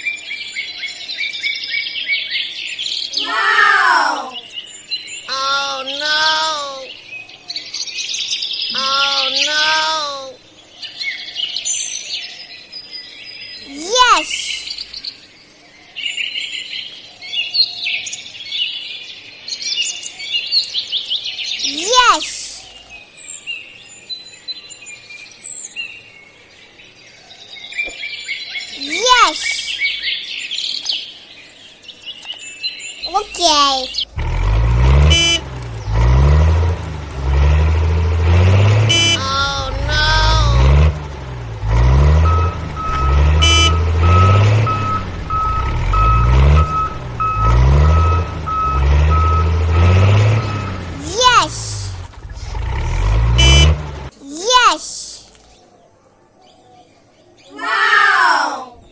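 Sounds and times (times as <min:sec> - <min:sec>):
faint birdsong: 0:00.0 - 0:58.9
engine revving: 0:33.9 - 0:54.2
reversing alarm beeping: 0:42.0 - 0:50.9.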